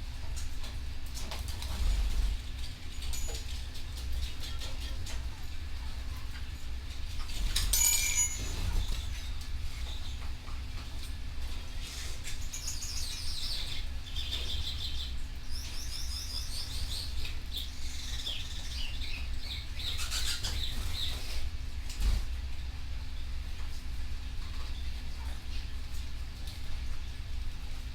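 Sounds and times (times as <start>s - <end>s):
steady low hum: 0.0s - 27.9s
canary singing trills: 12.2s - 21.4s.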